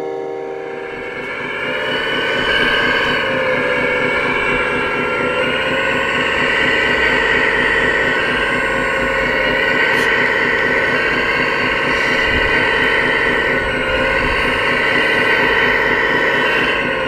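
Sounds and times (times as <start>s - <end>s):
pulsing low rumble: 0.0s - 17.0s
rc machine motor whine: 0.0s - 17.0s.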